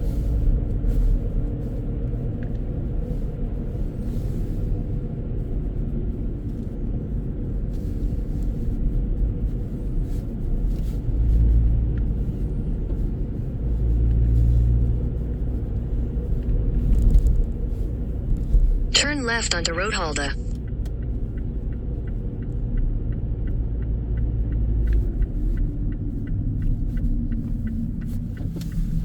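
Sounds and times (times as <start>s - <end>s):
car engine and tyre rumble: 0.0s - 18.9s, 20.7s - 29.0s.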